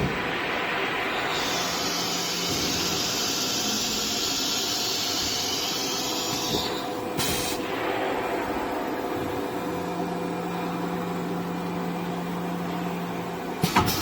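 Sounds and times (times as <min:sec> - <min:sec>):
compressed air hissing: 0:01.2 - 0:07.7.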